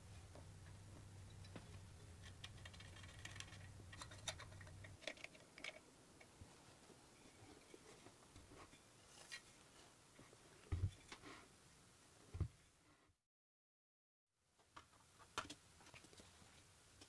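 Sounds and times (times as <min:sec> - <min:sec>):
low electrical hum: 0:00.0 - 0:12.9
small objects clicking and tapping: 0:01.3 - 0:06.4.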